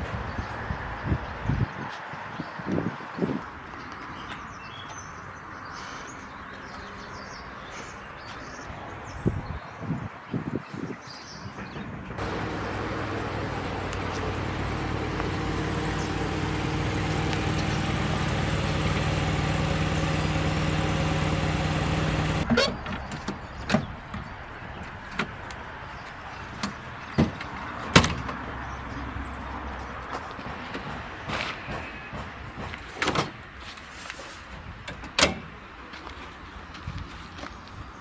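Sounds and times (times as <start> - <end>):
vehicle engine running: 12.2 - 27.7.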